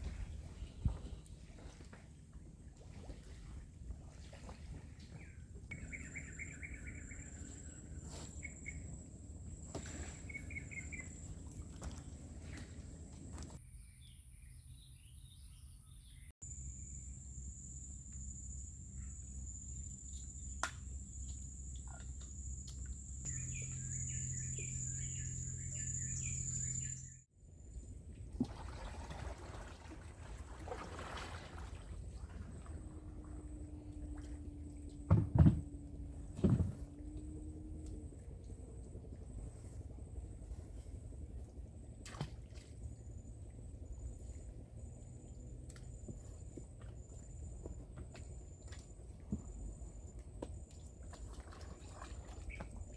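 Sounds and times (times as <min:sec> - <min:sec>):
bird chirps: 0:05.2 - 0:09.0, 0:09.7 - 0:11.4, 0:21.2 - 0:27.2.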